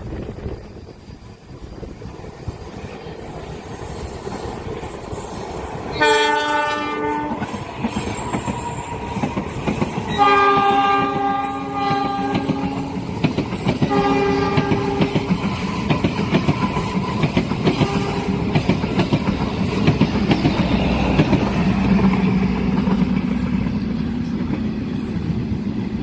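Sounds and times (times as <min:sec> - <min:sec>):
train rumble and wheel clatter: 0:00.0 - 0:26.0
train horn chord: 0:05.9 - 0:07.5, 0:10.1 - 0:13.0, 0:13.8 - 0:15.3.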